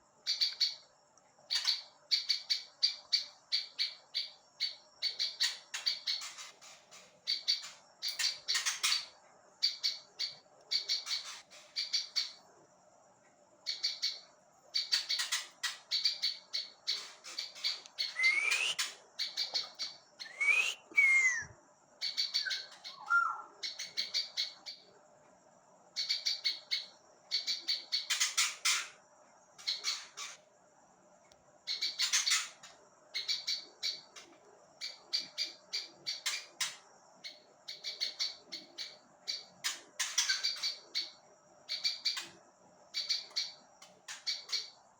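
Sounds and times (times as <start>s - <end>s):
bird chirping rapidly: 0.2s - 0.8s, 1.5s - 12.4s, 13.6s - 24.8s, 26.0s - 28.9s, 31.7s - 34.1s
sliding whistled bird notes: 18.0s - 18.9s, 20.2s - 21.6s, 22.4s - 23.5s.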